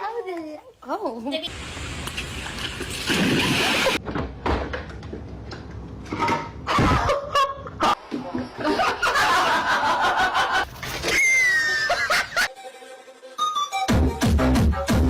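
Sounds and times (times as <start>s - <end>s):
person laughing: 6.7s - 8.0s, 11.4s - 13.1s.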